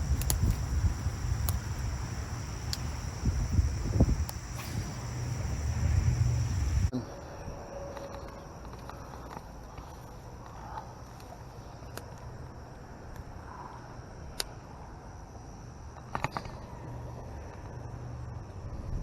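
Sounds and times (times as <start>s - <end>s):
faint clicks: 0.0s - 6.9s
high insect buzz: 0.0s - 6.9s
loud low rumble: 0.0s - 6.9s.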